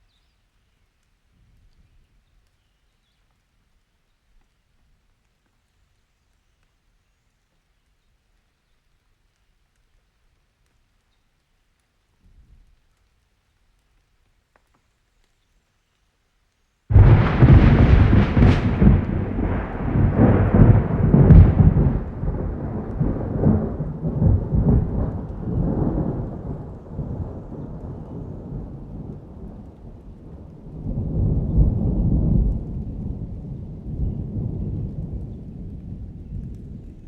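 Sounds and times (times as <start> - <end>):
thunder clap and rumble: 16.9 - 37.0.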